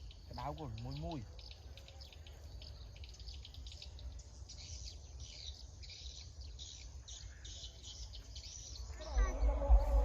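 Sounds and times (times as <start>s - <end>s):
bird and insect chirps: 0.0s - 10.0s
steady low rumble: 8.8s - 10.0s.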